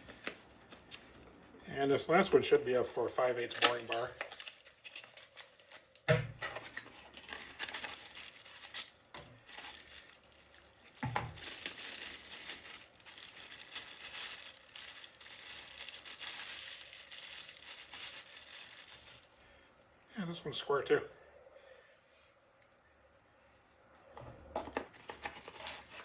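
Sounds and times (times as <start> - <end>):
packaging crinkling and tearing: 2.2 - 19.4, 24.7 - 26.0.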